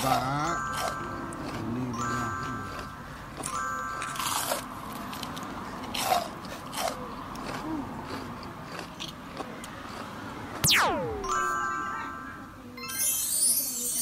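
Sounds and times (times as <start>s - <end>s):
person chewing food: 0.0s - 10.6s
crunchy bites: 5.2s - 10.8s
descending whistle sound effect: 10.6s - 11.5s.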